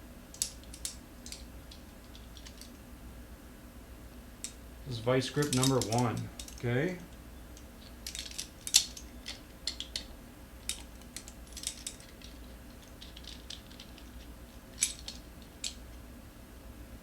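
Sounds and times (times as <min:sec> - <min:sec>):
locking pliers clicking: 0:05.4 - 0:06.6, 0:07.6 - 0:14.2, 0:14.8 - 0:15.8.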